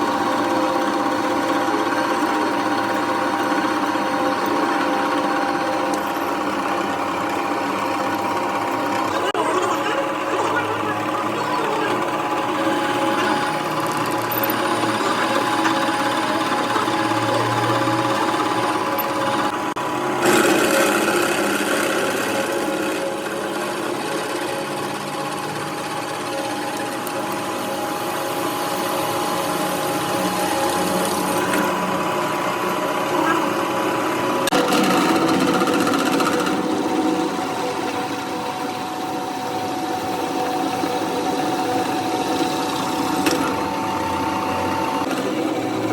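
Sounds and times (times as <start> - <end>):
machinery clattering: 0.0 - 45.9
machinery hum: 0.0 - 45.9.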